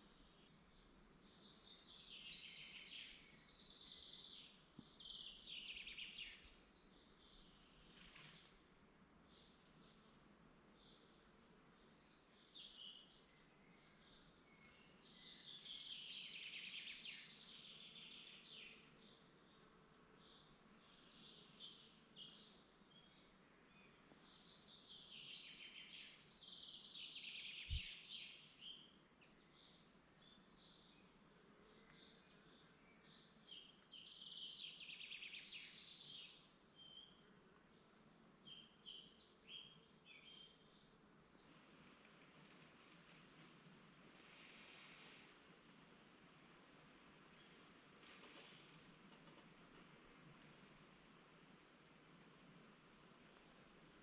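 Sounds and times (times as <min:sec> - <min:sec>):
bird twittering song: 0:00.0 - 0:08.6, 0:09.2 - 0:41.5
faint background hiss: 0:00.0 - 0:54.0.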